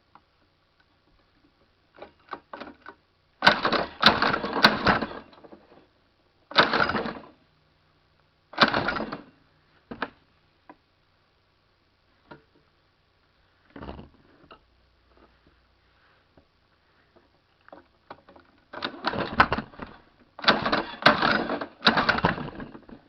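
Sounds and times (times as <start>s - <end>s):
engine recoil starter pulls: 3.4s - 5.4s, 6.5s - 7.3s, 8.6s - 9.3s, 18.8s - 23.0s.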